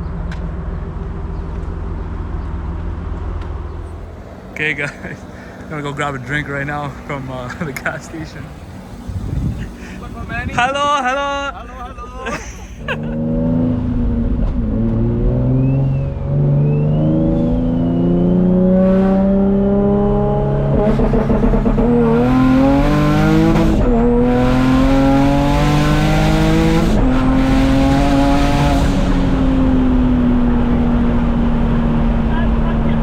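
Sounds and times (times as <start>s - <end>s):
car engine accelerating through gears: 12.8s - 33.0s.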